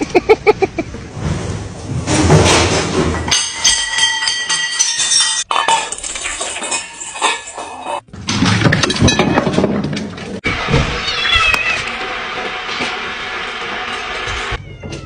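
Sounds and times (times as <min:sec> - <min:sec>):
metallic clattering and clinking: 0:01.8 - 0:10.4.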